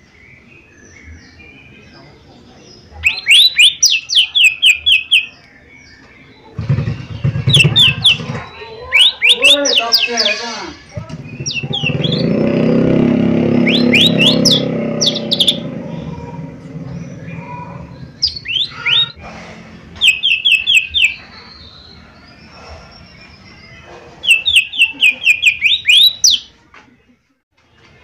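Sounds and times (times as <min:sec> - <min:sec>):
bird chirping: 0:00.0 - 0:26.6
loud low noise: 0:10.9 - 0:23.6.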